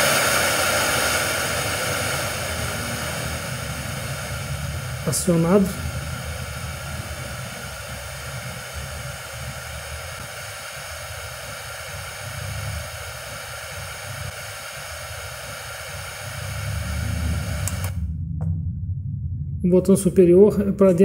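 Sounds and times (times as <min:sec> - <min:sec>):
radio static hiss: 0:00.0 - 0:18.0
low rumble: 0:16.4 - 0:21.0.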